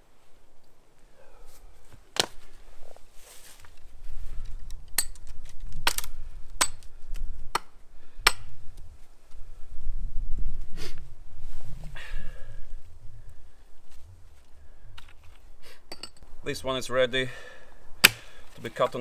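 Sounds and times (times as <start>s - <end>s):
axe chopping tree trunk: 6.6s - 6.9s, 7.5s - 8.5s, 18.0s - 18.4s.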